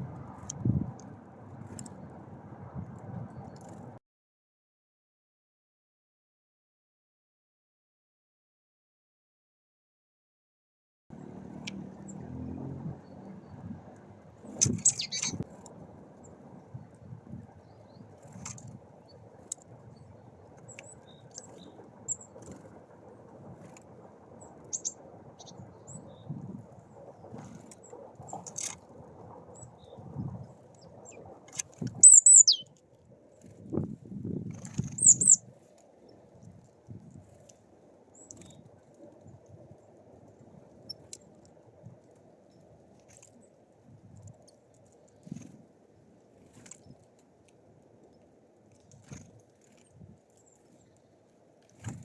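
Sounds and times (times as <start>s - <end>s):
small birds chirping: 11.1s - 22.8s, 24.4s - 28.8s, 29.5s - 32.8s, 34.6s - 36.4s, 38.1s - 39.4s
faint low rumble: 11.1s - 32.6s
birds pecking on feeder: 14.4s - 15.6s
high bird chirps: 14.5s - 15.4s, 24.6s - 26.3s, 31.9s - 32.7s, 34.9s - 35.4s.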